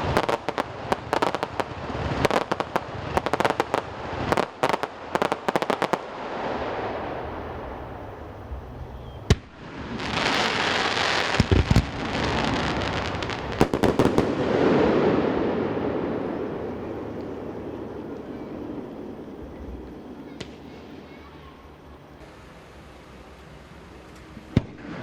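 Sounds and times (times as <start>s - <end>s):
fireworks bang: 0.0s - 8.3s, 9.2s - 21.2s, 24.1s - 25.0s
fireworks crackling: 0.0s - 25.0s
hissing crackle: 0.0s - 25.0s
echoes off mountains: 11.8s - 25.0s.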